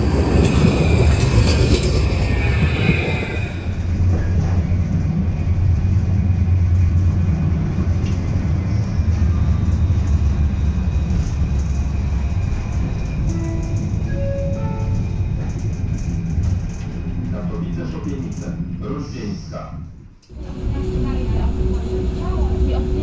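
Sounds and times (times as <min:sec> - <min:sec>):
tram wheels rumbling on rail: 0:00.0 - 0:23.0
faint wheel squeal: 0:00.5 - 0:03.8.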